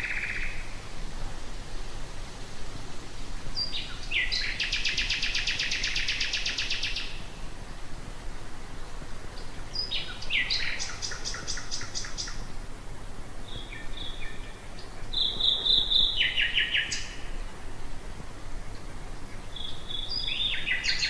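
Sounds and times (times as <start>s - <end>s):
nightingale singing: 0.0s - 0.8s, 3.6s - 7.3s, 9.4s - 12.5s, 13.4s - 17.4s, 19.3s - 21.0s.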